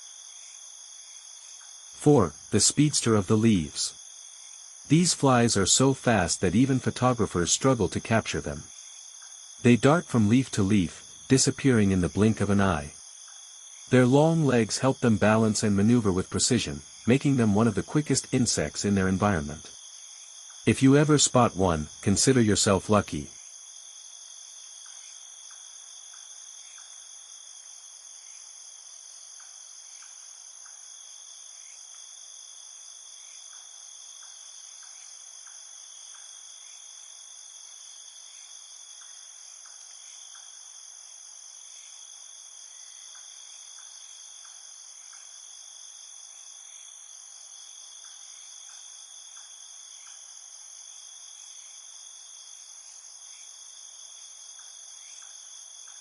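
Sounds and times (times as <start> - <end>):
crickets trilling: 0.0 - 56.0
short insect chirps: 46.3 - 56.0.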